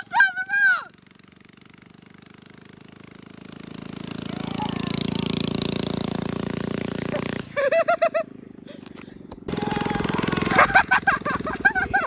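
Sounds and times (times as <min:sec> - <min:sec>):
small bike engine running: 0:00.0 - 0:12.0.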